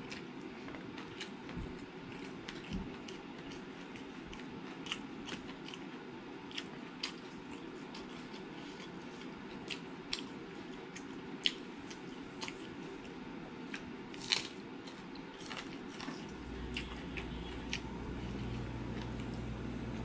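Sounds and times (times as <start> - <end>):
person chewing food: 0.0 - 19.4
low steady hum: 0.0 - 20.0
crunchy bite: 14.2 - 14.6.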